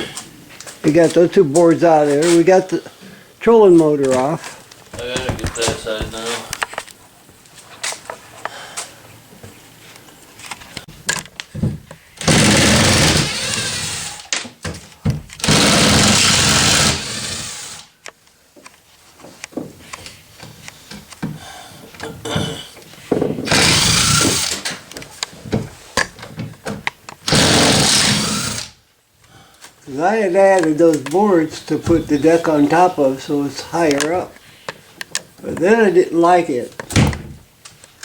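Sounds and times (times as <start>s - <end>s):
handling clicks and knocks: 4.0s - 6.9s
power drill running: 12.2s - 14.3s, 15.4s - 17.8s, 23.5s - 24.7s, 27.3s - 28.8s.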